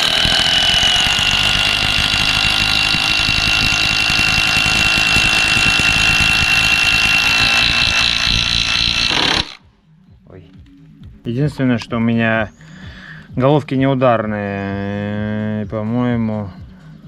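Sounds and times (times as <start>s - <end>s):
impact wrench hammering and whining: 0.0s - 9.7s.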